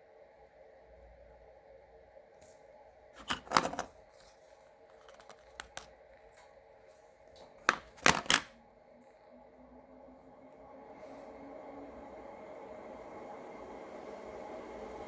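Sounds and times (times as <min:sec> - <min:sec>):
sharp clicks and rustling: 0:03.2 - 0:04.3, 0:05.0 - 0:05.9, 0:07.6 - 0:08.5
ceiling fan motor humming: 0:09.4 - 0:15.0.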